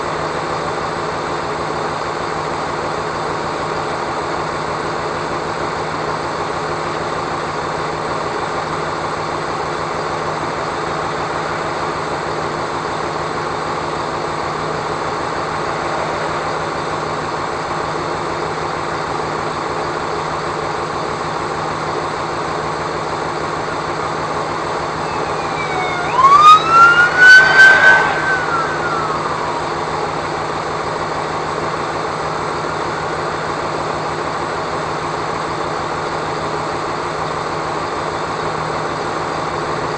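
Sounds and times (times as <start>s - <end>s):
vehicle engine and road noise: 23.5s - 31.6s
siren: 23.7s - 31.7s.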